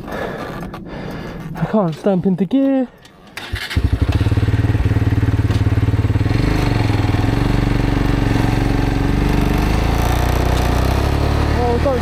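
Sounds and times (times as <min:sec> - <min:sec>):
motorcycle engine running: 0:03.5 - 0:12.0.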